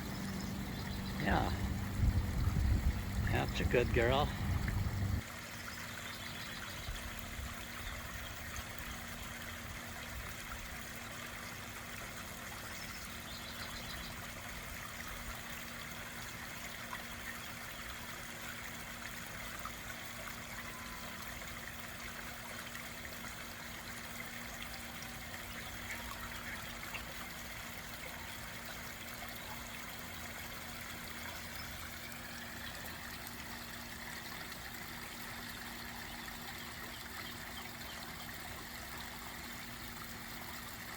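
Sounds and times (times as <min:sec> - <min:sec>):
water trickling over waterfall: 0:00.0 - 0:40.9.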